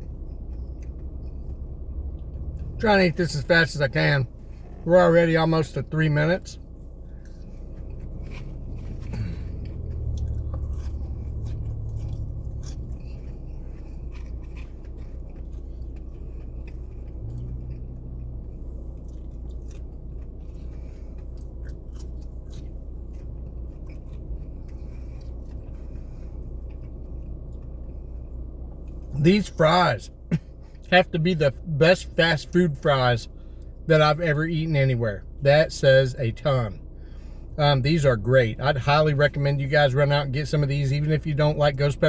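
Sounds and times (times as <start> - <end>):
person chewing french fries: 0.0 - 2.8, 5.5 - 30.9
low steady hum: 0.0 - 42.0.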